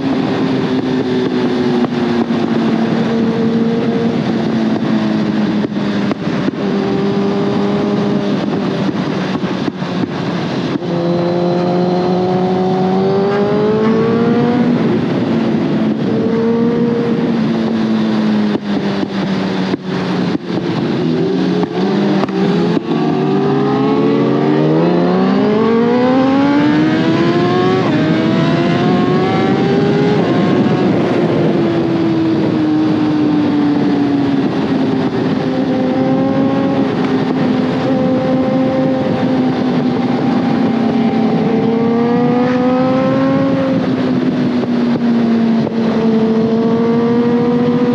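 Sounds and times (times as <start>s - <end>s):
motorcycle engine revving: 0.0s - 47.9s
wind noise: 0.0s - 47.9s.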